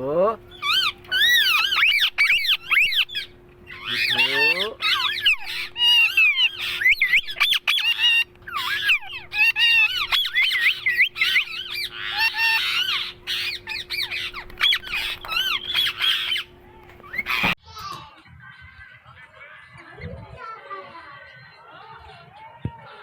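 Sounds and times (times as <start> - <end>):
parrot chattering and squawking: 0.4 - 17.6.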